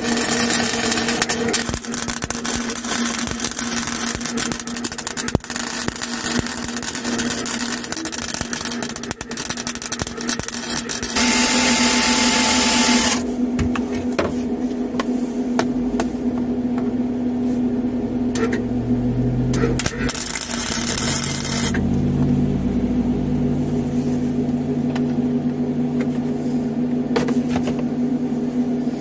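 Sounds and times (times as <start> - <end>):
welding arc crackle: 0.0 - 13.3, 19.5 - 22.2
steady hum: 0.0 - 29.0.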